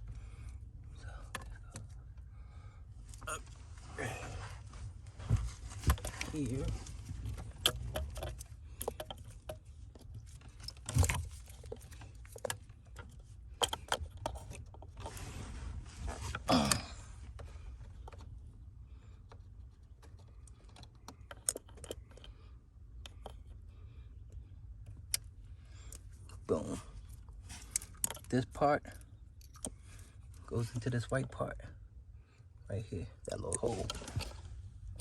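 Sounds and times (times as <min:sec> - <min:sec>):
low steady hum: 0:00.0 - 0:35.0
scraping rustle: 0:14.9 - 0:16.5.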